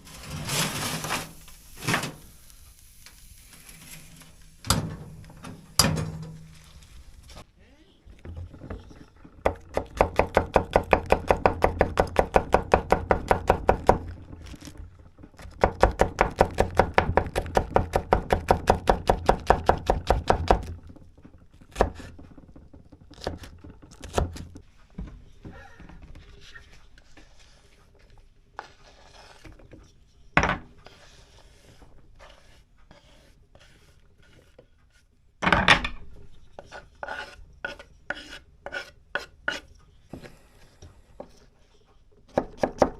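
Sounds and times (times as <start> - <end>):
knocks and clatters: 8.1 - 26.6
knife chopping on cutting board: 42.3 - 42.9.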